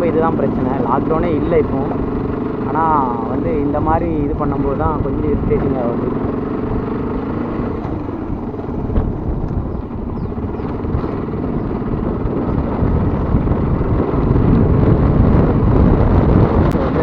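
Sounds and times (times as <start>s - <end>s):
motorcycle engine running: 0.0s - 17.0s
road and wind noise: 0.0s - 17.0s.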